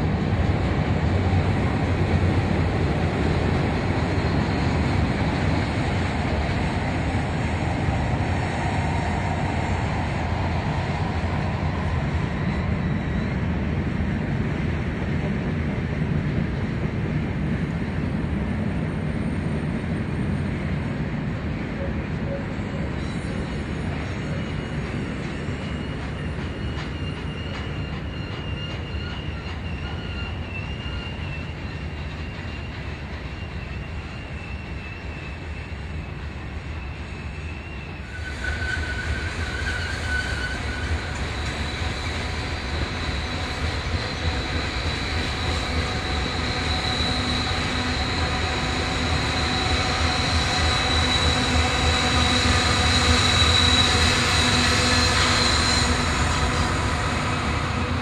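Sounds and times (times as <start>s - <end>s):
freight train wheels rumbling: 0.0s - 58.0s
high-pitched wheel squeal: 22.3s - 58.0s.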